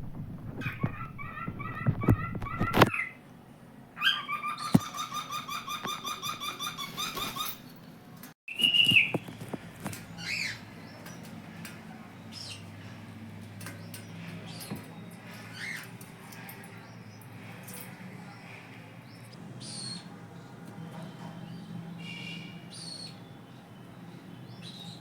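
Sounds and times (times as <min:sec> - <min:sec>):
cockatiel whistle: 0:08.5 - 0:09.2.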